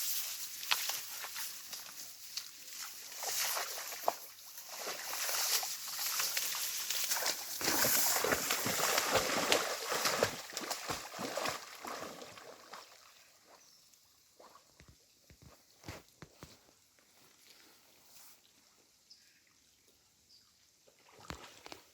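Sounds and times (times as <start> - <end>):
water sloshing and splashing: 2.7 - 13.4.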